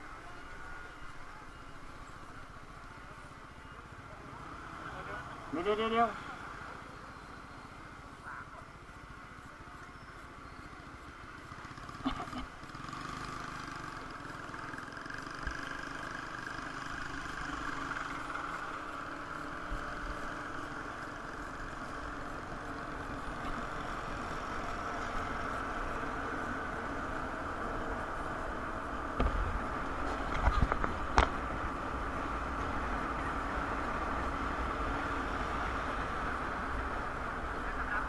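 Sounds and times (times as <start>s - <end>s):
motorcycles passing: 0.0s - 9.4s, 10.8s - 38.0s
road traffic: 0.0s - 38.0s.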